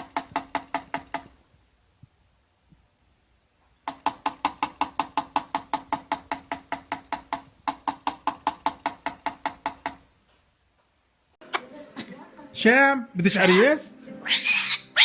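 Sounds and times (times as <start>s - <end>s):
rapid ringing tapping clicks: 3.9s - 10.0s.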